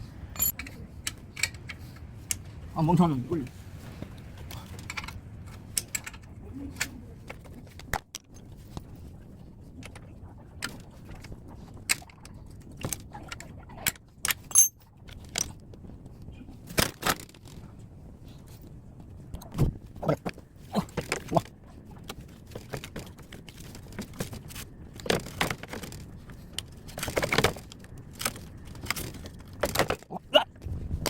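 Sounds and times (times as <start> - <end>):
metal clinks and knocks: 0.3 - 1.6, 14.4 - 15.5.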